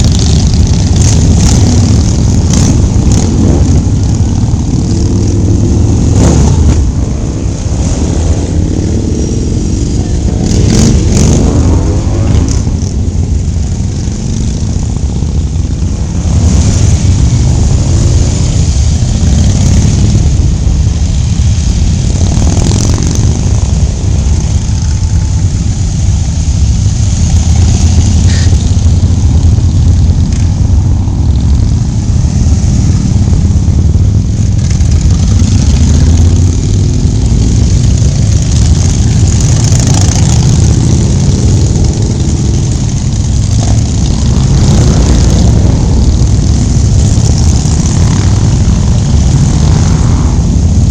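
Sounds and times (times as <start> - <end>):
motorcycle engines running: 0.0 - 50.9.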